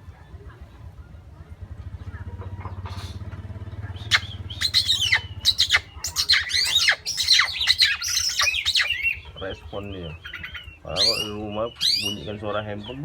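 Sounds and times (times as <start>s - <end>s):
bird singing sharp whistles: 4.0s - 9.2s, 10.3s - 12.2s.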